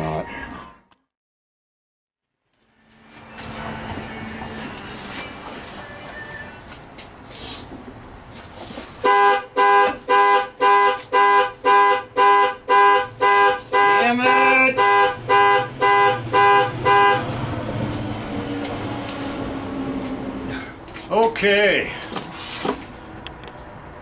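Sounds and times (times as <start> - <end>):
horn-like alarm beeping rapidly: 9.0 - 17.4.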